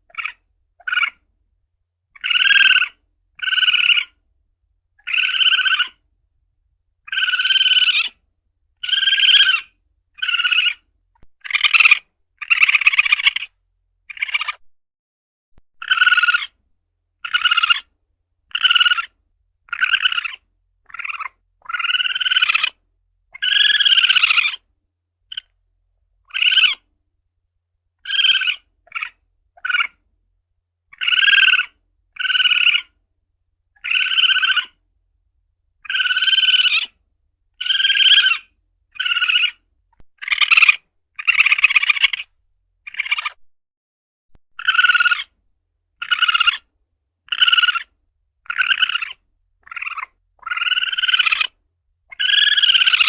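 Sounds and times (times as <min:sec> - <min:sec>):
civet calling in short high calls: 0:00.1 - 0:01.2, 0:02.1 - 0:04.2, 0:05.0 - 0:06.0, 0:07.1 - 0:08.2, 0:08.8 - 0:10.8, 0:11.4 - 0:14.6, 0:15.8 - 0:16.6, 0:17.2 - 0:17.9, 0:18.5 - 0:24.6, 0:25.3 - 0:25.5, 0:26.2 - 0:26.8, 0:28.0 - 0:30.0, 0:30.9 - 0:33.0, 0:33.8 - 0:34.8, 0:35.8 - 0:37.0, 0:37.6 - 0:39.6, 0:40.2 - 0:42.3, 0:42.9 - 0:43.4, 0:44.6 - 0:45.4, 0:46.0 - 0:46.7, 0:47.3 - 0:53.0.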